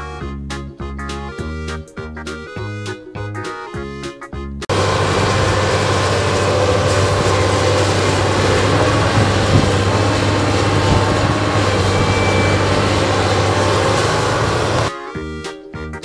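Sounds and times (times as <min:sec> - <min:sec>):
deep hum: 0:04.7 - 0:14.9
excavator engine running: 0:04.7 - 0:14.9.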